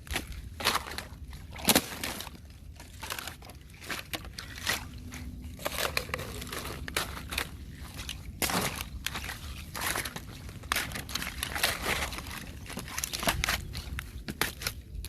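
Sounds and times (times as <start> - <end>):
thin ice crunching and cracking: 0.0 - 15.0.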